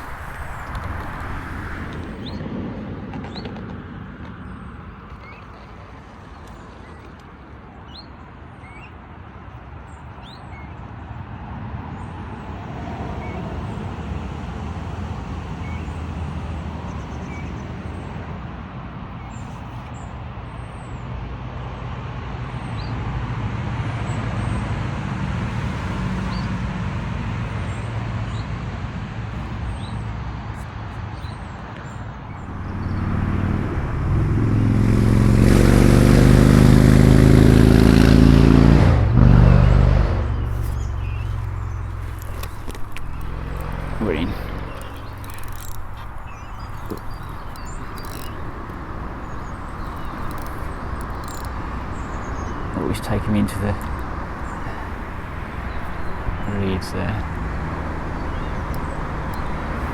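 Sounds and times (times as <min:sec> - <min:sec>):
loud engine hum: 0:00.0 - 0:02.4, 0:32.3 - 0:59.9
small birds chirping: 0:00.0 - 0:02.4, 0:31.2 - 0:59.9
passing motor vehicle rumble: 0:00.0 - 0:07.1, 0:32.2 - 0:59.9.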